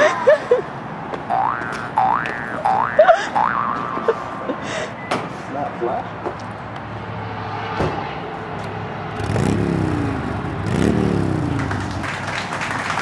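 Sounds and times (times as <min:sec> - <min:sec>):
car engine humming and revving: 0:06.4 - 0:12.2.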